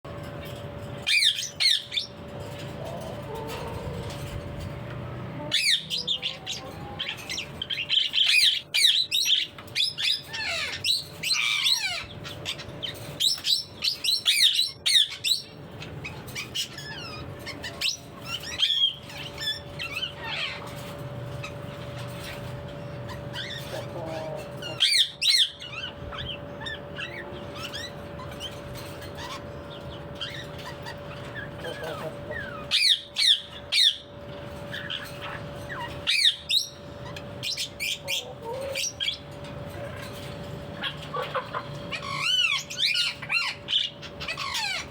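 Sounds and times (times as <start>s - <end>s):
parakeet chirping and squawking: 0.2s - 44.9s.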